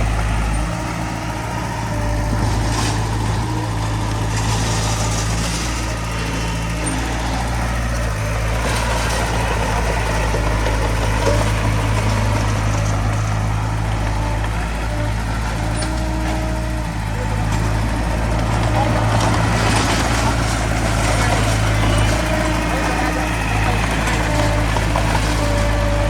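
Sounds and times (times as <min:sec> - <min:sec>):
heavy diesel engine humming: 0:00.0 - 0:26.0.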